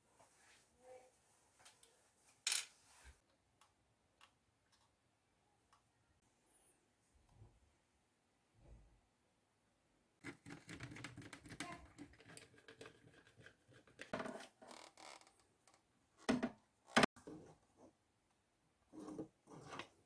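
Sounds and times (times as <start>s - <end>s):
plastic parts scraping and rattling: 10.2s - 14.8s.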